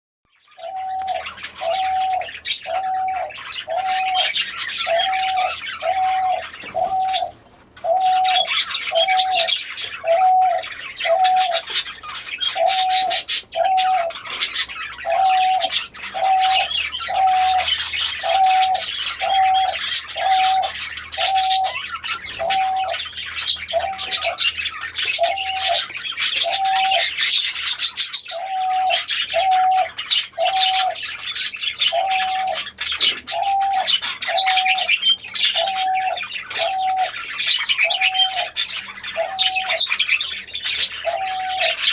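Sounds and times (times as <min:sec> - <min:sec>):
many birds chirping: 0:00.3 - 0:41.9
pigeons cooing: 0:00.5 - 0:41.9.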